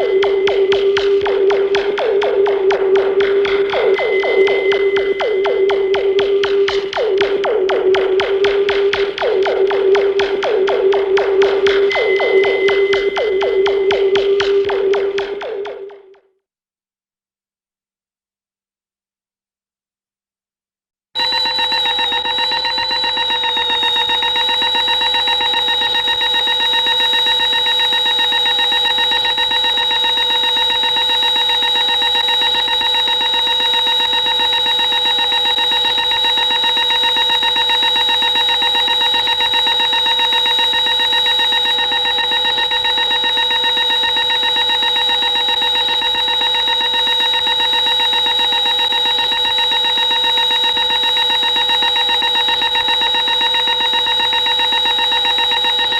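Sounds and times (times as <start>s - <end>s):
shrill layered tonal drone: 0.0s - 15.9s, 21.2s - 32.1s.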